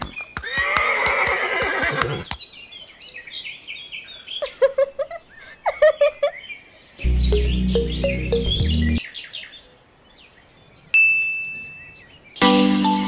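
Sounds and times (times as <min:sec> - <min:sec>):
horse whinnying: 0:00.4 - 0:02.3
high chirps: 0:07.0 - 0:09.0.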